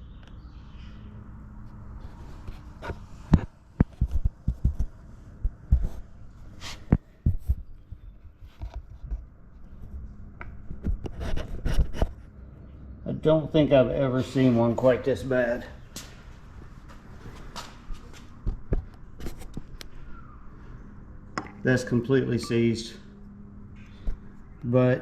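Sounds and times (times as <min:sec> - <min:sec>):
low steady hum: 0:00.0 - 0:25.0
sharp knocks and clicks: 0:21.4 - 0:21.6.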